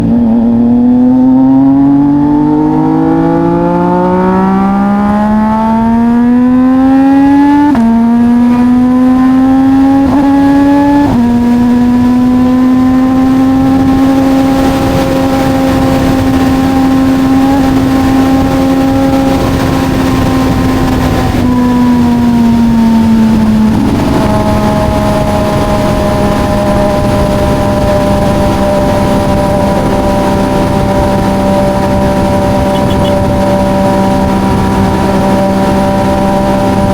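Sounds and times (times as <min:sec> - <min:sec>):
motorcycle engine accelerating: 0:00.0 - 0:36.9
gear upshifts: 0:31.4 - 0:36.9.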